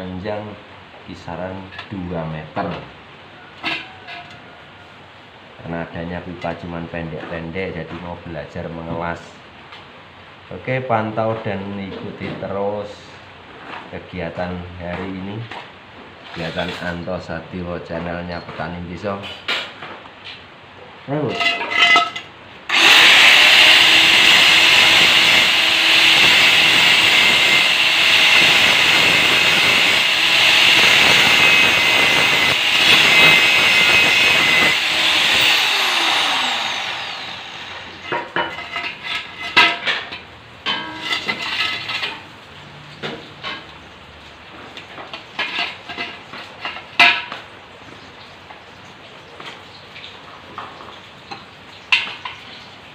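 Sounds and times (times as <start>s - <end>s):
angle grinder cutting steel: 21.4s - 39.6s, 40.8s - 42.1s.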